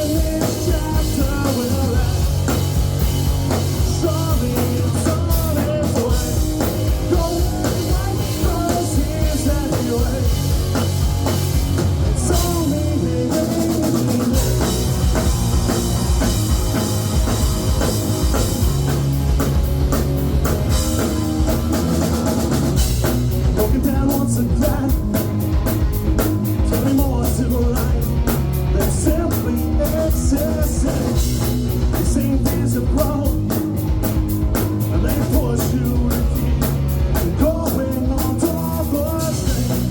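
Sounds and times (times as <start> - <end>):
rock band playing: 0.0 - 39.9
person singing: 3.8 - 10.4, 12.2 - 14.8, 23.5 - 25.3, 26.7 - 31.2, 34.9 - 36.6, 37.2 - 39.9.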